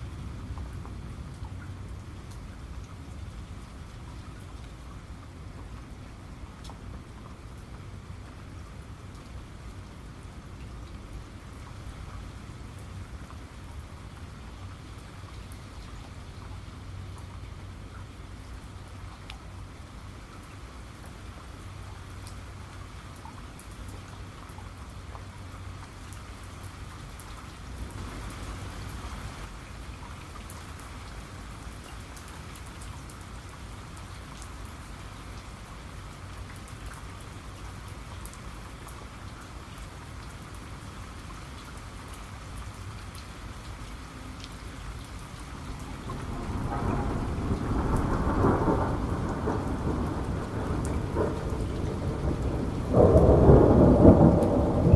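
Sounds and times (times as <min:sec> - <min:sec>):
steady rain: 0:00.0 - 0:54.9
raindrops tapping: 0:44.4 - 0:54.9
thunder rumbling: 0:45.6 - 0:54.9.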